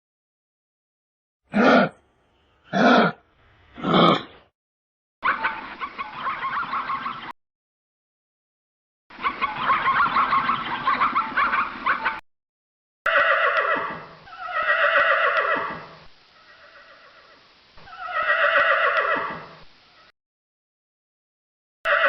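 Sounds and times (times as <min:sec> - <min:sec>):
horse neighing: 0:01.5 - 0:02.0, 0:02.7 - 0:03.2, 0:03.8 - 0:04.3, 0:13.1 - 0:19.6
fowl chattering: 0:05.2 - 0:07.3, 0:09.2 - 0:12.2.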